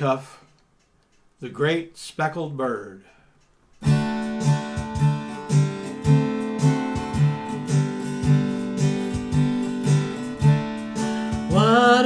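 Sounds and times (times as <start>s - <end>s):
acoustic guitar strumming: 3.8s - 12.0s.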